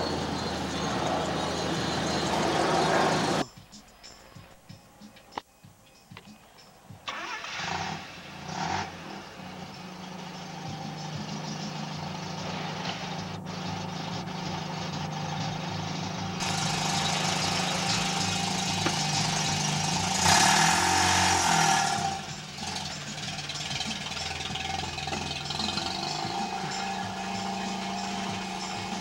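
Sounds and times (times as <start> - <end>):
rotary engine idling: 0.0 - 3.4, 9.6 - 29.0.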